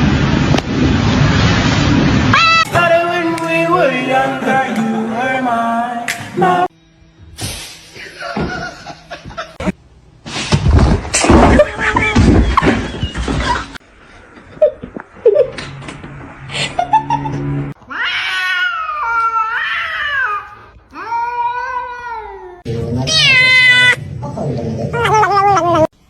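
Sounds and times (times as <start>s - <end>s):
cat meowing: 17.8s - 24.0s.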